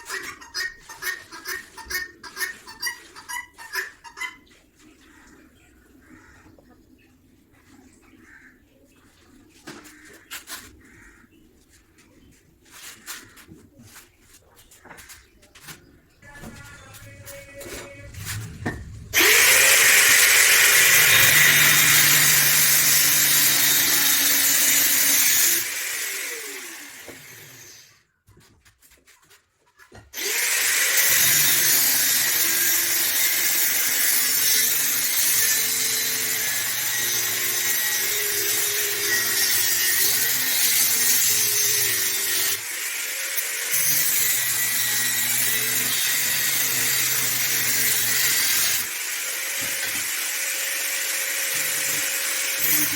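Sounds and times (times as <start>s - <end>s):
electric power tool running: 19.1s - 27.9s, 30.2s - 52.9s.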